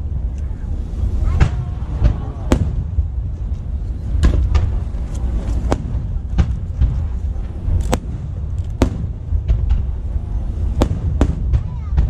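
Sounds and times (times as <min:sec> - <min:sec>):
low rumble: 0:00.0 - 0:12.0
fireworks bangs: 0:01.2 - 0:12.0.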